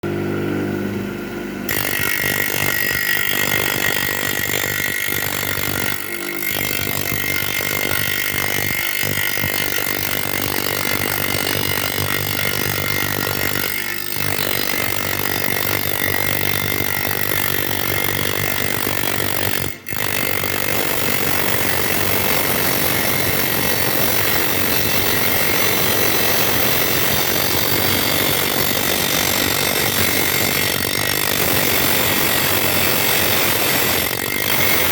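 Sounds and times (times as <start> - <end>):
power grinder cutting brick: 1.7 - 34.9.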